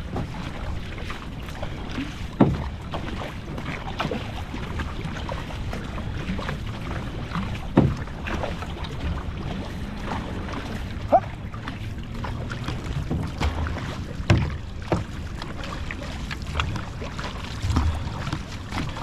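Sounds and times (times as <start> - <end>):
paddles splashing in water: 0.0 - 19.0
wind rumbling on microphone: 16.2 - 19.0.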